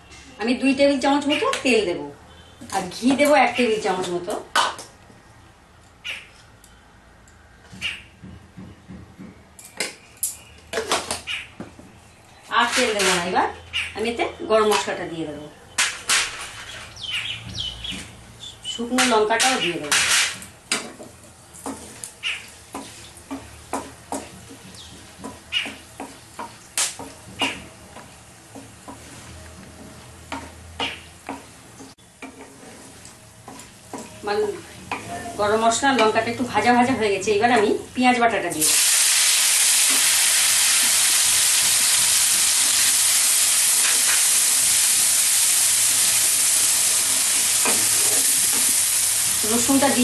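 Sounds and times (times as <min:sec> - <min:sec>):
onion paste sizzling in oil: 0:21.0 - 0:36.7, 0:38.4 - 0:50.0
spatula scraping pan: 0:27.4 - 0:35.1
spices sizzling in oil: 0:38.5 - 0:50.0.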